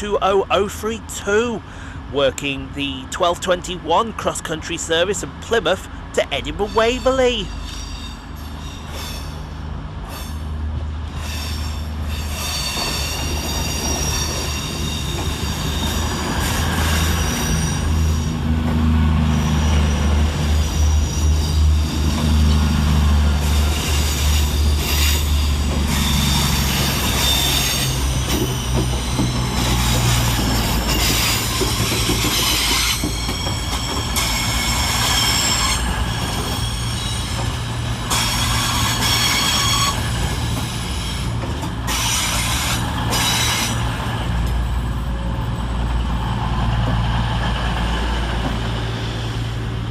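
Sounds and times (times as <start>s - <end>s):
diesel train engines droning: 0.0s - 49.9s
train wheels squealing: 6.6s - 10.5s, 11.1s - 18.4s, 19.2s - 22.6s, 23.4s - 43.9s.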